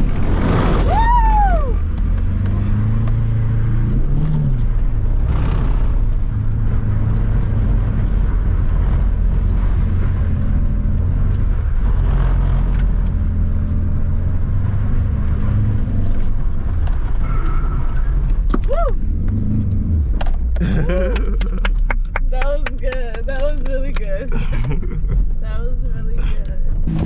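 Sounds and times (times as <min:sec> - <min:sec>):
car engine running hard: 0:00.0 - 0:27.0.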